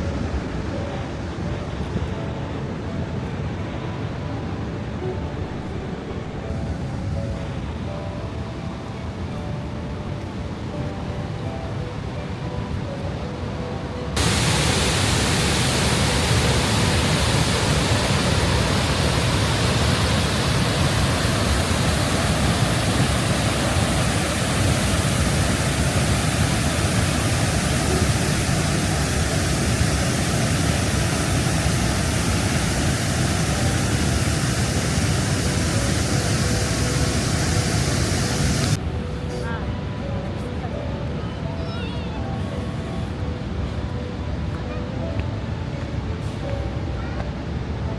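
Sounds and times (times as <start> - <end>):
faint steady tones: 0.0 - 41.5
waterfall rushing: 13.2 - 39.3.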